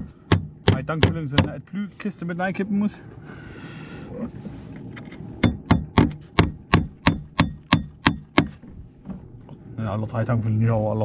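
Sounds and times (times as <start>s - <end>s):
hammer striking nail: 0.0s - 1.6s, 5.4s - 8.6s.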